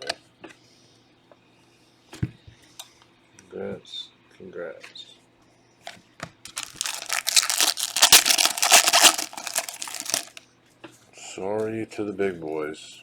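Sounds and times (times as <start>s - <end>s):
foil wrapper tearing and crinkling: 6.5s - 10.4s.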